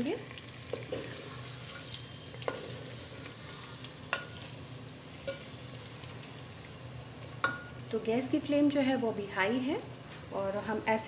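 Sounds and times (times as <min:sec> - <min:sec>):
chicken sizzling in hot oil: 0:00.0 - 0:07.9.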